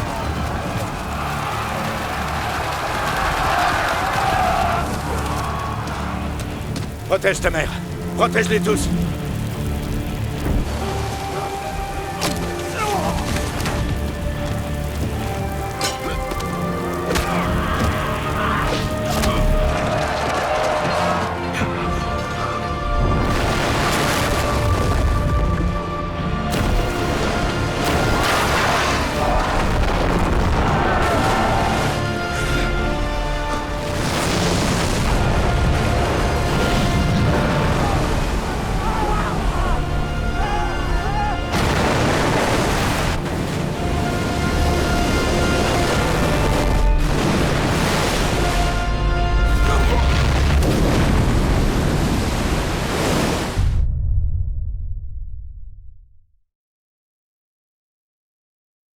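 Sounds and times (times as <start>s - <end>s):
torrential water rushing: 0.0s - 53.8s
dramatic film score: 0.0s - 56.0s
deep rumble and booms: 53.5s - 56.3s.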